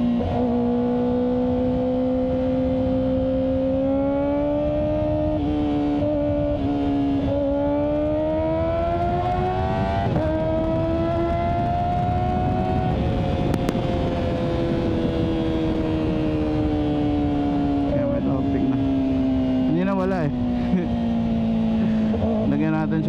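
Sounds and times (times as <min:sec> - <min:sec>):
motorcycle engine revving: 0:00.0 - 0:23.0
wind rush on microphone: 0:00.0 - 0:23.0.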